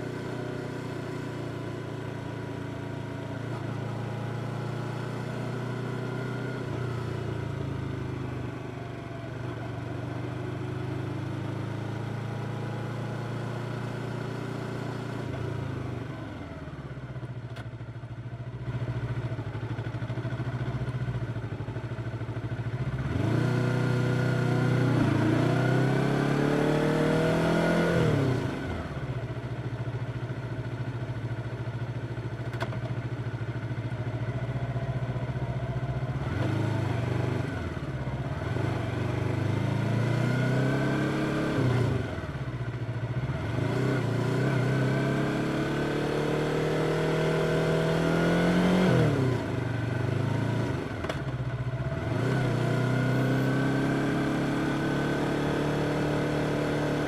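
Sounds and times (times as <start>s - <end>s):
motorcycle engine accelerating: 18.6s - 57.0s.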